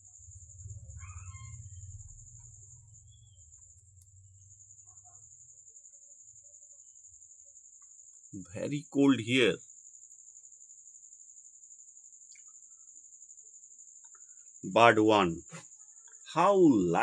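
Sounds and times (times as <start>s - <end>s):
low hum: 0.0s - 5.6s
cricket trilling: 0.0s - 17.0s.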